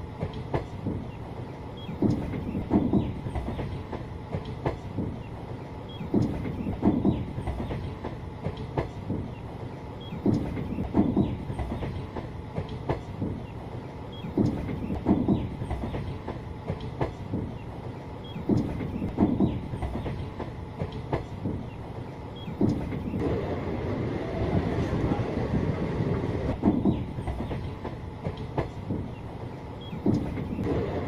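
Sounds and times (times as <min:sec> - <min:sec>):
train rumbling: 0:00.0 - 0:31.0
wheels clacking over rail joints: 0:26.5 - 0:31.0.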